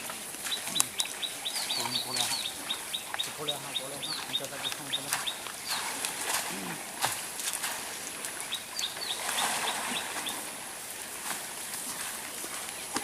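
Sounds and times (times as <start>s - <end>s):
small bird chirping: 0.5s - 6.0s, 8.4s - 10.4s.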